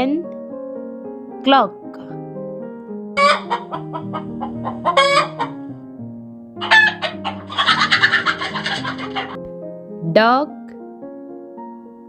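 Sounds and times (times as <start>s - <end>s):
soft background music: 0.0s - 12.0s
hen clucking and squawking: 3.2s - 5.7s, 6.6s - 9.4s.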